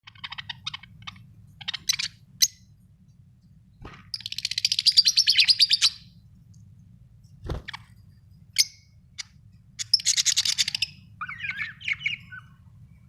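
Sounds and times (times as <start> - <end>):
budgerigars chirping: 0.1 - 2.7, 4.1 - 6.1, 8.5 - 12.6.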